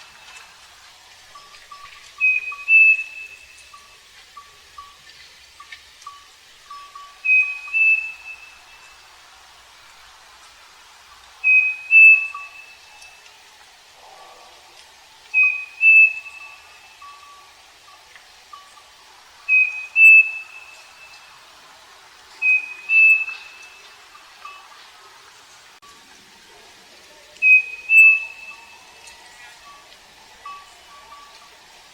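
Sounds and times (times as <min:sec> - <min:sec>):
bird whistling two-note phrases: 0:02.2 - 0:03.6, 0:07.2 - 0:08.6, 0:11.4 - 0:12.8, 0:15.4 - 0:17.2, 0:19.5 - 0:20.8, 0:22.4 - 0:23.8, 0:27.4 - 0:28.8.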